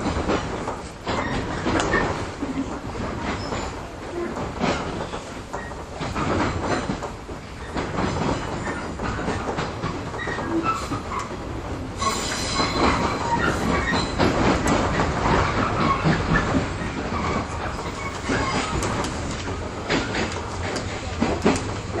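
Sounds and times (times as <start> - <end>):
rail-joint clicks: 0.0 - 22.0
train wheels rumbling on rail: 0.0 - 22.0
high wheel squeal: 12.0 - 14.2.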